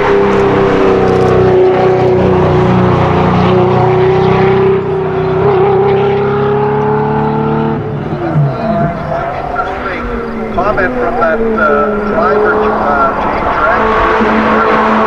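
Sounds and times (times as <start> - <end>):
car engine revving high: 0.0 - 15.0.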